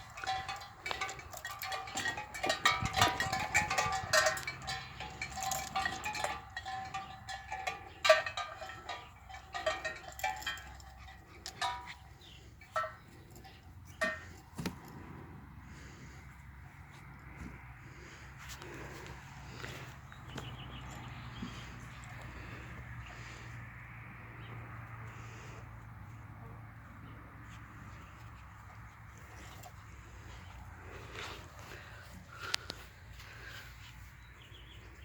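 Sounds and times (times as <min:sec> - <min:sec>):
metal bells clanking and jingling: 0:00.0 - 0:16.0, 0:18.6 - 0:23.6.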